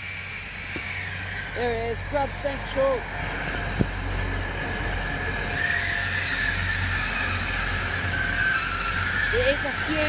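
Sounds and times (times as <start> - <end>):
train rumbling: 0.0 - 10.0
thin high squeal: 5.4 - 10.0.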